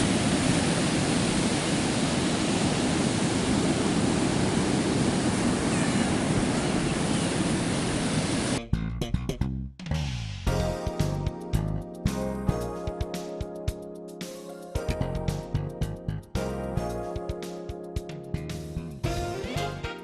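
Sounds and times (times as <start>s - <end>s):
ocean surf: 0.0s - 8.6s
wind: 0.0s - 8.6s
guitar music: 8.6s - 9.5s, 10.5s - 20.0s.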